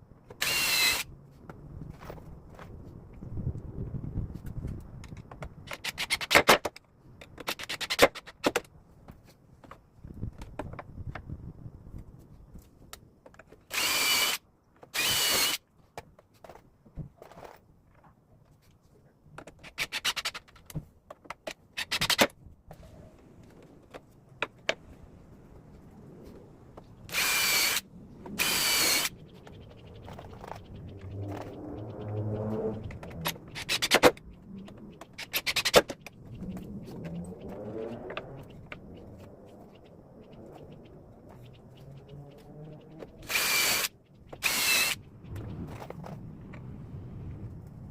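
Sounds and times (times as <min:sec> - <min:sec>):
power drill running: 0:00.4 - 0:01.0, 0:13.7 - 0:14.4, 0:15.0 - 0:15.6, 0:27.1 - 0:27.8, 0:28.4 - 0:29.1, 0:43.2 - 0:45.0.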